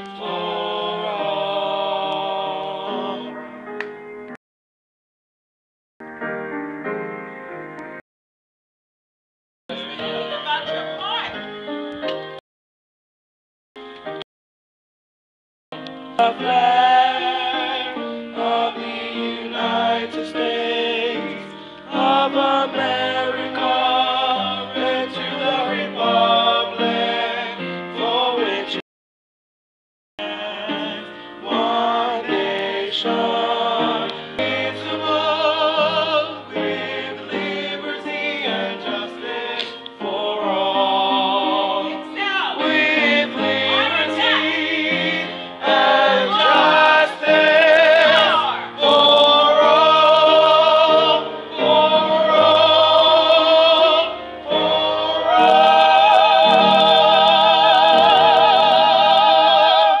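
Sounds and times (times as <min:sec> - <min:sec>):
person singing with vibrato: 0:37.9 - 1:00.0.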